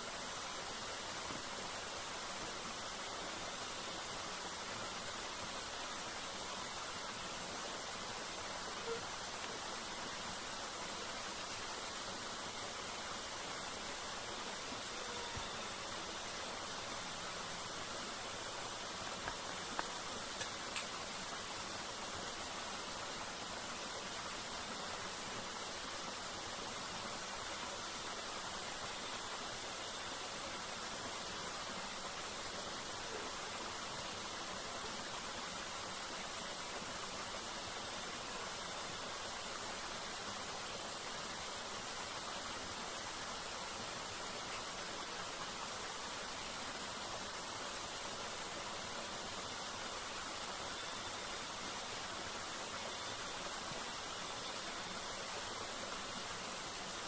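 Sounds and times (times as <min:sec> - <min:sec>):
waterfall rushing: 0:00.0 - 0:57.0
faint ticks: 0:19.2 - 0:21.0.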